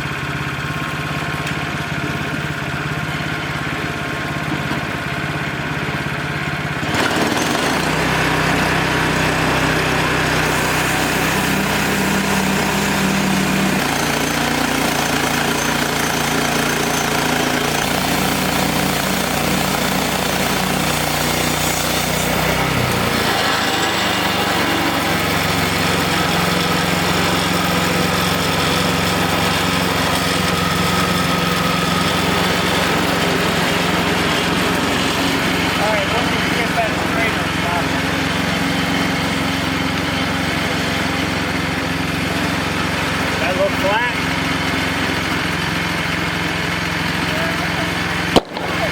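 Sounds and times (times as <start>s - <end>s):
band sawmill engine running: 0.0s - 48.9s
saw blade hiss cutting log: 6.8s - 38.1s.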